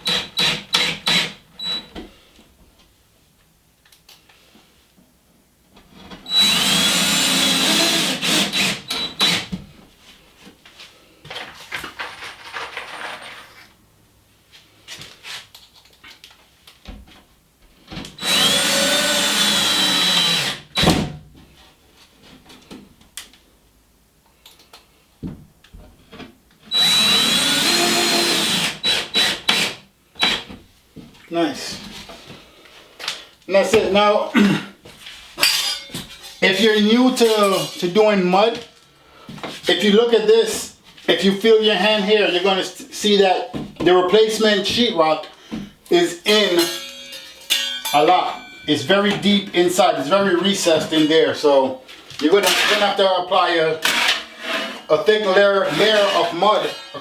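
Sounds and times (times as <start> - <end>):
power drill driving screws: 0.0 - 1.9, 6.3 - 9.5, 18.2 - 20.9, 26.7 - 30.5.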